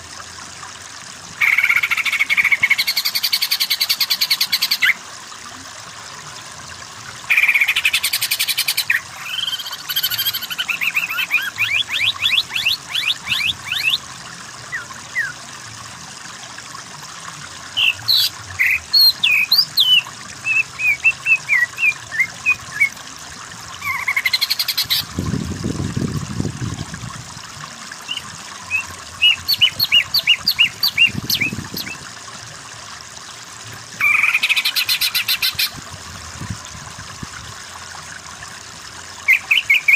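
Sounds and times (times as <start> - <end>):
leafbird singing varied song: 28.1 - 32.0.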